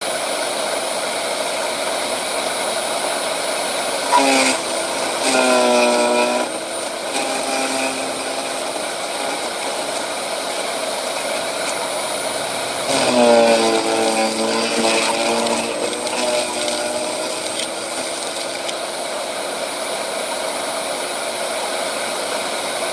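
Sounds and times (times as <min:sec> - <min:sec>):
wood chipper humming: 0:00.0 - 0:22.9
chipper blades droning: 0:01.6 - 0:18.8.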